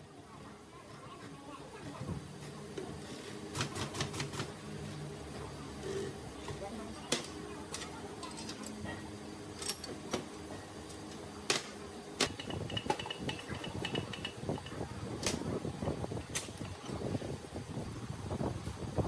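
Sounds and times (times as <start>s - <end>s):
scraping and handling noise: 5.4s - 17.3s
metal tools clinking: 7.2s - 8.8s, 9.6s - 10.0s.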